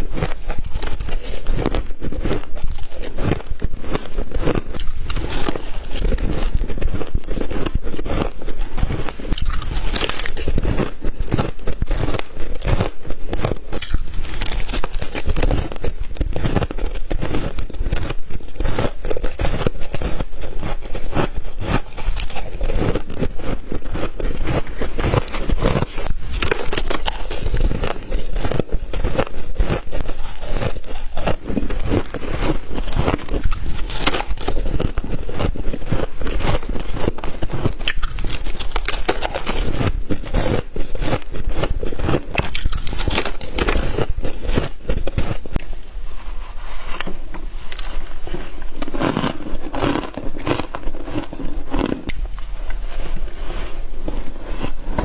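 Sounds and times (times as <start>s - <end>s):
chewing crunchy frost: 0.0s - 55.0s
steady high hiss: 45.6s - 55.0s.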